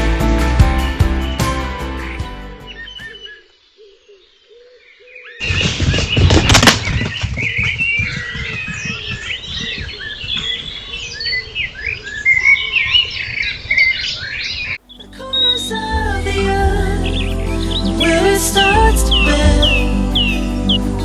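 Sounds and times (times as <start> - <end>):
music: 0.0 - 3.1, 14.8 - 21.0
birds singing and chirping: 2.6 - 21.0.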